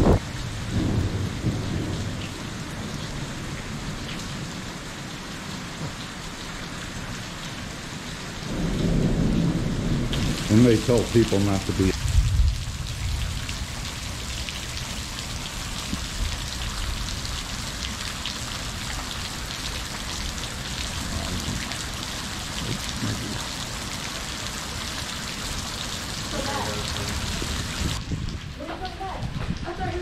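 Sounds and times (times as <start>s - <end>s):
thunder rumbling: 0.0s - 4.0s, 8.4s - 17.9s, 20.0s - 23.9s, 25.6s - 30.0s
heavy rain falling: 0.0s - 30.0s.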